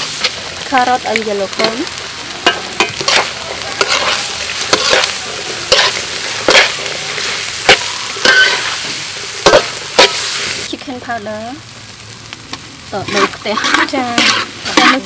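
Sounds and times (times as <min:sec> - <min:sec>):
rice sizzling in a hot pan: 0:00.0 - 0:15.0
spatula scraping a pan: 0:01.5 - 0:10.6, 0:13.0 - 0:15.0.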